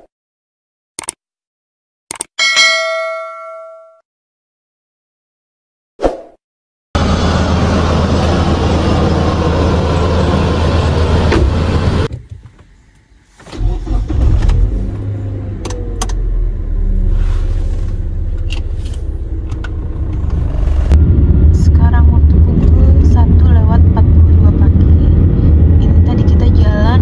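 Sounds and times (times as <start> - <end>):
sharp clicks: 1.0 - 1.2, 2.1 - 2.3
car engine starting and idling: 7.0 - 26.9
car engine humming: 7.0 - 27.0.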